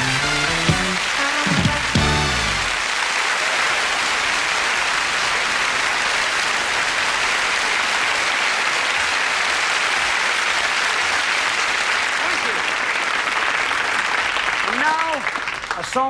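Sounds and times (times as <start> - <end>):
band playing final chord: 0.0 - 2.8
studio audience applauding: 0.0 - 16.0.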